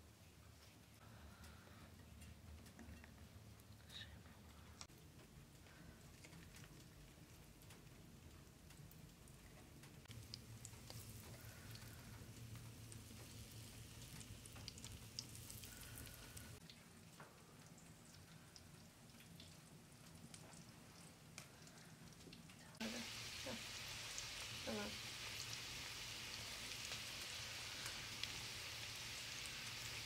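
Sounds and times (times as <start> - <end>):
food sizzling in oil: 10.1 - 16.6, 22.8 - 30.0.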